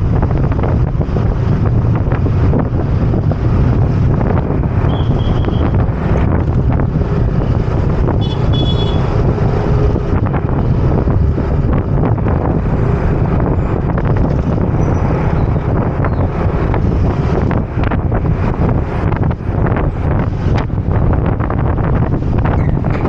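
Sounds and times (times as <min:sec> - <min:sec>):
traffic noise: 0:00.0 - 0:23.0
wind buffeting microphone: 0:00.0 - 0:23.0
scooter engine: 0:05.9 - 0:11.4.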